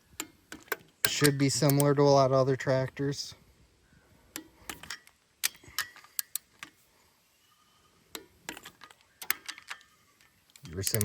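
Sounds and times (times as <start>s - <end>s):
hand tools clicking and clinking: 4.4s - 6.8s, 8.1s - 11.0s.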